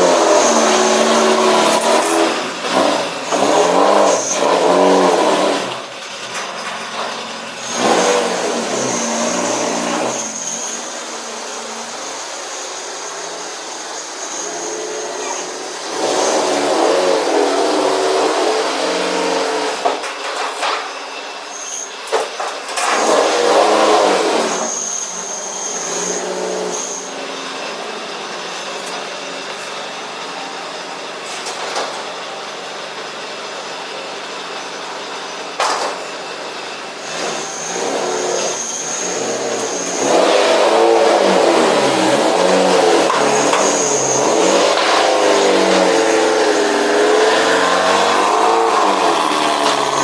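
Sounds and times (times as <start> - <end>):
car engine revving: 39.4 - 50.0.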